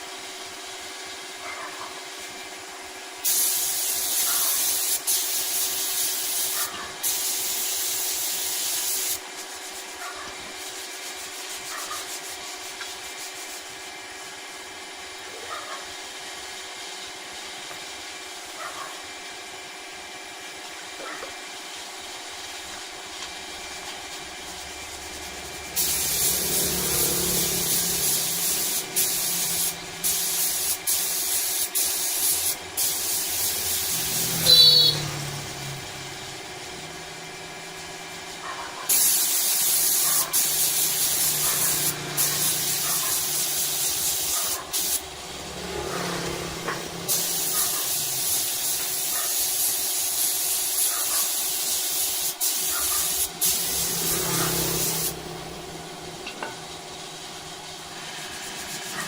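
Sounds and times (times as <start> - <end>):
low workshop machine hum: 0.0 - 59.0
air gun hissing: 3.2 - 13.9, 23.8 - 37.0, 37.7 - 59.0
loud high squeal: 34.2 - 35.4.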